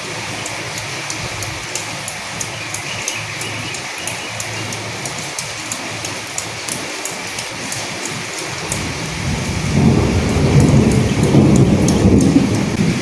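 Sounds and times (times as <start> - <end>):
sharp drips: 0.0 - 13.0
steady rain falling: 0.0 - 13.0
thunder rumbling: 8.6 - 13.0.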